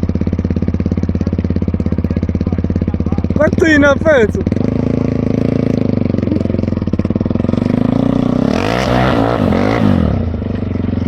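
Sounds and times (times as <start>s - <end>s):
quad bike engine revving: 0.0s - 11.0s.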